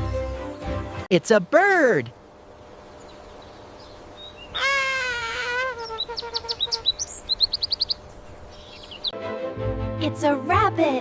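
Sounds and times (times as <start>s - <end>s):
high rising bird chirps: 2.8s - 9.2s
long wavering bird call: 4.2s - 8.0s.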